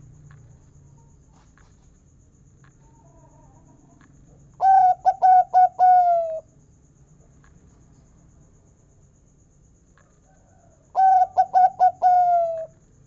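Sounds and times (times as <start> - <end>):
dove cooing: 4.6 - 6.4, 11.0 - 12.7.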